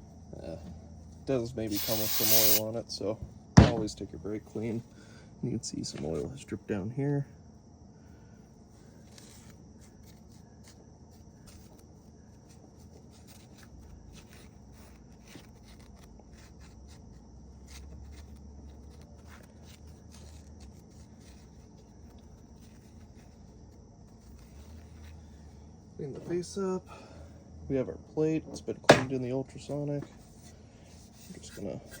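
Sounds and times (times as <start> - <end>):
rag rubbing: 1.7 - 2.6.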